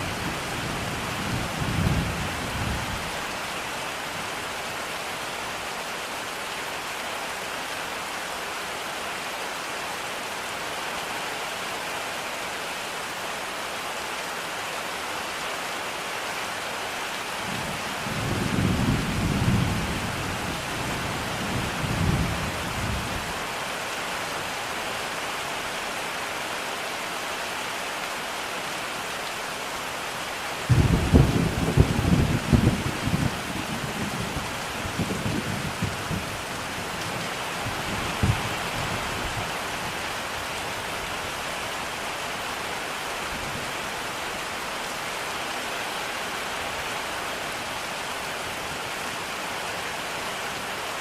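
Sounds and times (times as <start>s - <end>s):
heavy rain: 0.0s - 51.0s
thunder clap: 30.7s - 33.3s
thunder rumbling: 30.7s - 36.4s.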